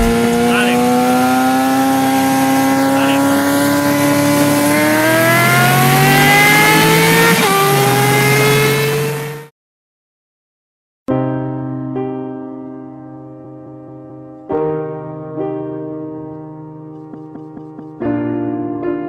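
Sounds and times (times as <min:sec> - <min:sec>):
high-revving engine accelerating: 0:00.0 - 0:09.5.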